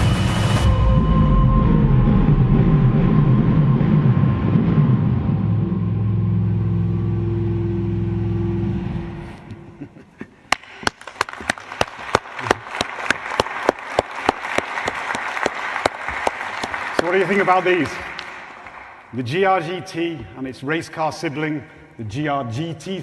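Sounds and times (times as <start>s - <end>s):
deep steady drone: 0.0s - 9.7s
audience applause: 10.5s - 19.1s.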